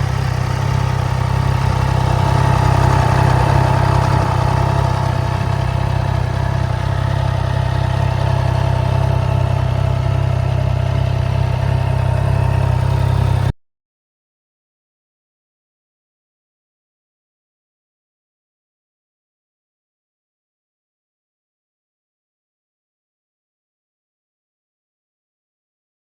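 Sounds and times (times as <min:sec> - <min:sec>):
motorcycle engine running steadily: 0:00.0 - 0:13.6.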